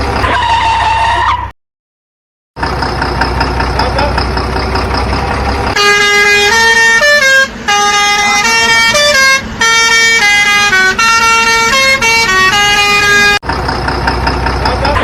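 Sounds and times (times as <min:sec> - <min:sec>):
low engine rumble: 0:00.0 - 0:01.3, 0:02.6 - 0:15.0
musical vehicle horn playing a tune: 0:05.8 - 0:13.4.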